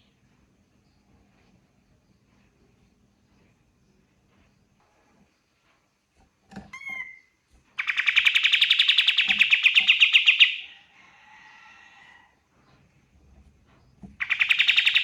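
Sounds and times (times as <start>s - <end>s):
bird whistled notes and trill: 6.8s - 10.7s, 14.2s - 15.0s.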